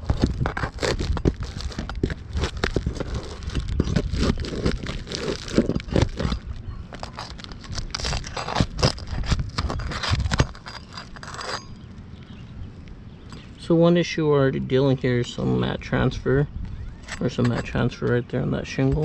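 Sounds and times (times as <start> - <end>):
pry bar scraping roof shingle: 0.0 - 11.8, 17.0 - 19.0
shingle cracking: 0.0 - 12.3.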